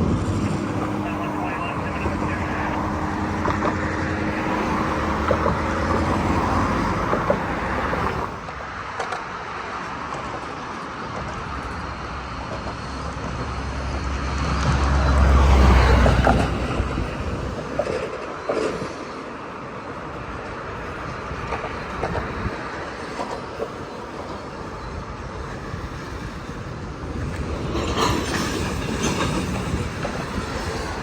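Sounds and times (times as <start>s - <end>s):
vehicle passing close: 0.0s - 8.4s
steady engine hum: 0.0s - 8.7s.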